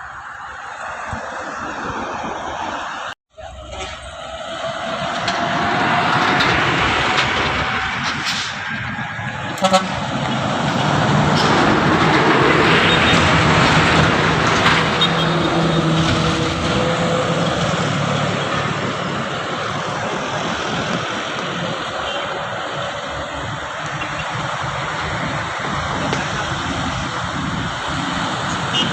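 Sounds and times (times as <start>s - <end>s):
heavy truck engine under load: 2.2s - 28.9s
truck horn toots: 9.4s - 11.2s, 14.8s - 17.6s, 28.5s - 28.9s.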